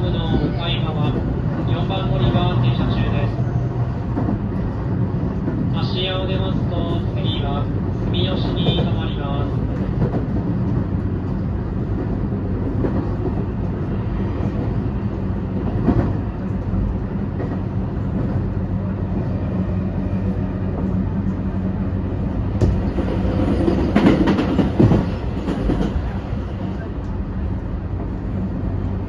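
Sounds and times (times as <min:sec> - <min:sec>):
passing train rush: 0:00.0 - 0:29.0
train wheels on rail: 0:00.0 - 0:29.0
track knock: 0:22.5 - 0:26.2.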